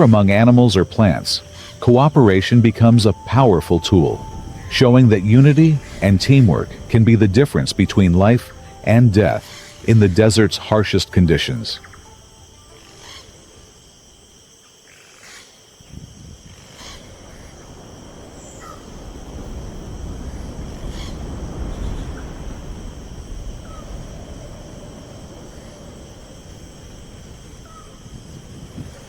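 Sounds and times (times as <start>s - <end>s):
low rumble: 0.0s - 12.5s
steady high tones: 0.0s - 13.7s.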